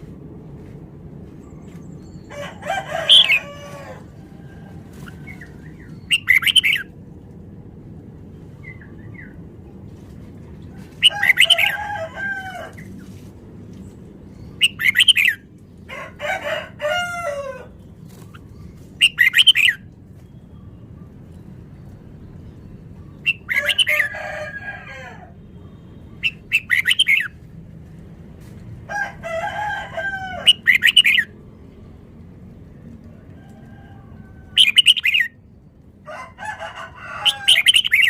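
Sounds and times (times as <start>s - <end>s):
low background hum: 0.0s - 38.0s
bird singing warbled phrases: 1.7s - 3.6s, 5.0s - 7.0s, 14.3s - 15.5s, 17.6s - 24.5s, 25.6s - 27.4s, 30.3s - 31.4s, 34.5s - 35.9s, 37.2s - 38.0s.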